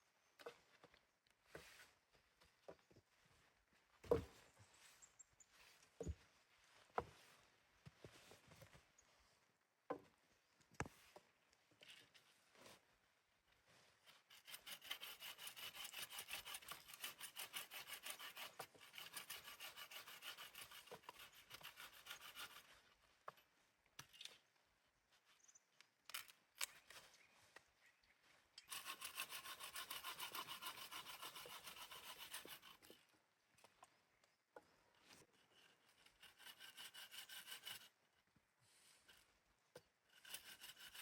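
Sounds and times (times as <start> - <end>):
hand saw cutting wood: 14.0 - 22.8, 28.7 - 33.1, 35.1 - 38.0, 39.8 - 41.0.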